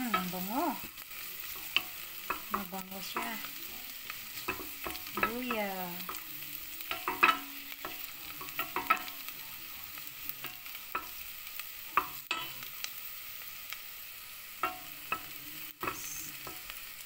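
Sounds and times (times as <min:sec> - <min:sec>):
onion and garlic sizzling: 0:00.0 - 0:17.0.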